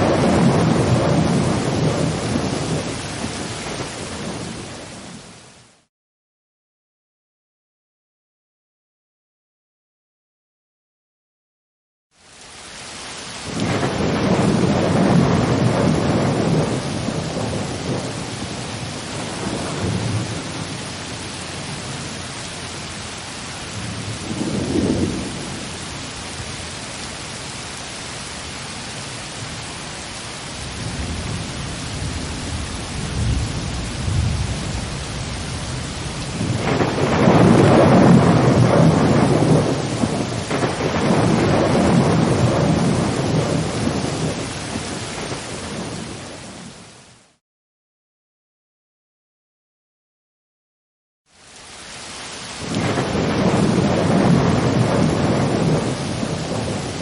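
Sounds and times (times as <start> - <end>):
thunder rumbling: 0.0 - 5.3, 13.4 - 26.2, 30.6 - 46.8, 52.6 - 57.0
rain falling steadily: 0.0 - 5.9, 12.1 - 47.4, 51.3 - 57.0.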